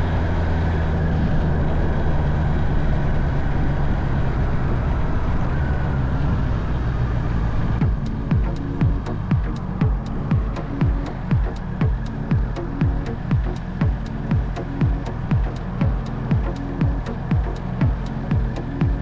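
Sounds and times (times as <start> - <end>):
rushing wind noise: 0.0 - 19.0
electronic music with thumping beat: 7.8 - 19.0
motorcycle engine running: 7.8 - 19.0.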